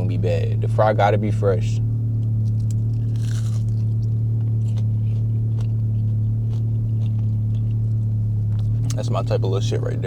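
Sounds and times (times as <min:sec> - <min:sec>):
car engine hum: 0:00.0 - 0:10.0
crunching and chewing fries: 0:02.2 - 0:09.3.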